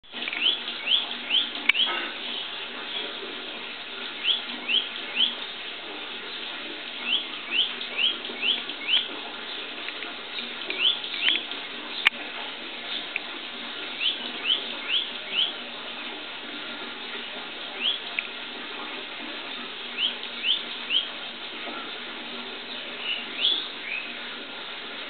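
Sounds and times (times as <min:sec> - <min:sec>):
small bird calling: 0:00.4 - 0:02.5, 0:04.2 - 0:05.4, 0:07.0 - 0:09.1, 0:10.7 - 0:12.1, 0:14.0 - 0:15.6, 0:17.8 - 0:18.1, 0:19.9 - 0:21.2, 0:23.0 - 0:24.2.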